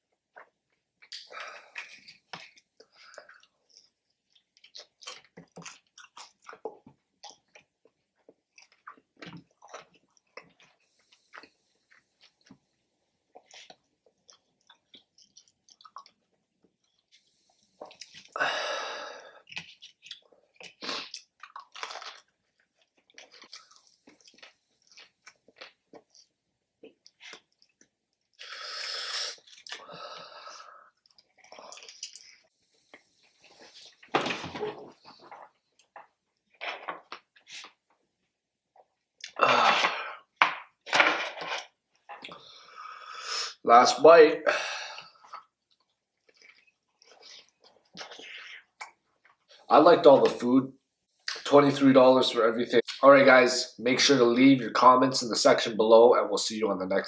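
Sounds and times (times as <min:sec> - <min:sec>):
crunchy chewing: 0:00.3 - 0:12.6, 0:13.3 - 0:17.2, 0:19.4 - 0:28.6, 0:29.3 - 0:34.1, 0:45.2 - 0:49.7
wet mouth clicks: 0:46.4 - 0:49.0.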